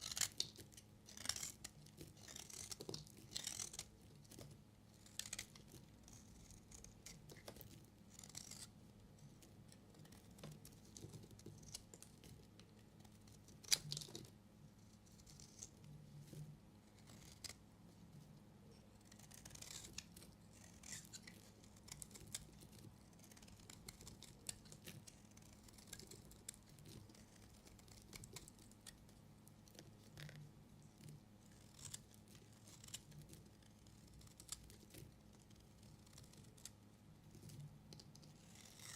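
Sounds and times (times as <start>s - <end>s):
knife cutting soap: 0.0s - 8.7s, 19.1s - 29.1s.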